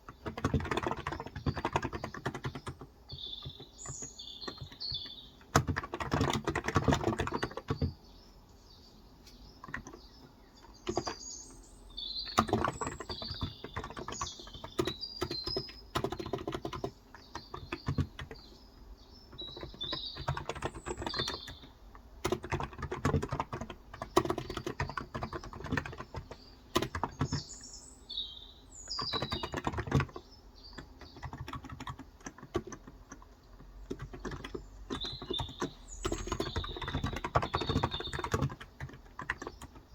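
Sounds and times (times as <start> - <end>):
keyboard typing: 0.0 - 8.0, 9.3 - 11.5, 12.2 - 18.6, 19.3 - 27.6, 28.9 - 39.9
birds chirping: 0.0 - 39.9.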